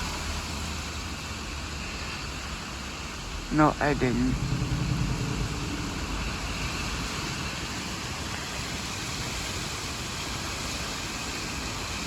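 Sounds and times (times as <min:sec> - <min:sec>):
heavy rain pouring: 0:03.2 - 0:09.2.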